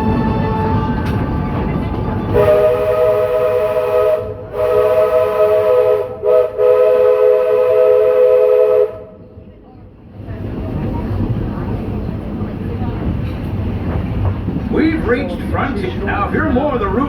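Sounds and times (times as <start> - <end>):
low rumble of moving train: 0.0 - 17.0
steam locomotive chime whistle: 2.3 - 9.1.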